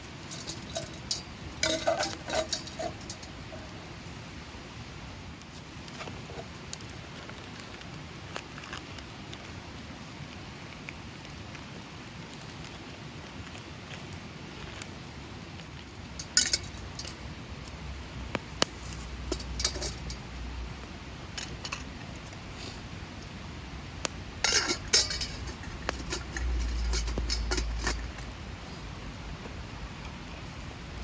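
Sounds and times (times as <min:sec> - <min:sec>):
metal pots and utensils clinking: 0:00.0 - 0:03.8, 0:16.2 - 0:17.2, 0:18.9 - 0:20.4, 0:24.4 - 0:28.3
rain hiss: 0:00.0 - 0:31.0.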